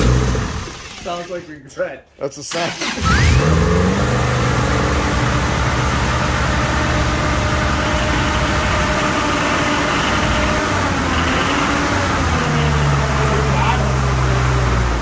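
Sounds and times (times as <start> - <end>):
pickup engine running: 3.0 - 15.0.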